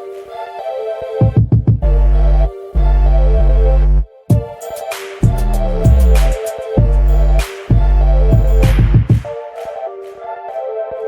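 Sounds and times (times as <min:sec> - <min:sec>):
heavy bass: 0:01.5 - 0:04.0, 0:05.2 - 0:09.2
synth chords: 0:01.8 - 0:11.0.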